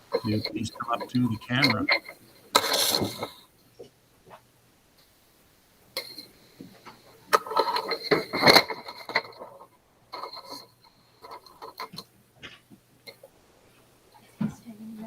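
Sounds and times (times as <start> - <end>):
scraping and rustling handling noise: 0.0 - 3.4, 6.0 - 13.2
faint steady hum: 0.0 - 15.0.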